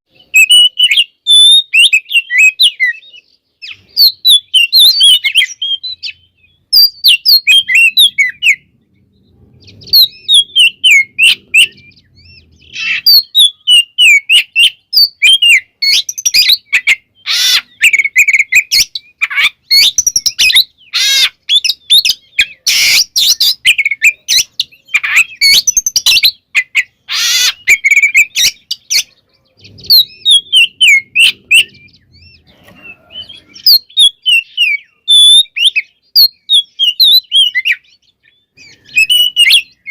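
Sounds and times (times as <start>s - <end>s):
harsh rasping bird notes: 0.1s - 36.0s
bird singing whistles and trills: 0.1s - 39.9s.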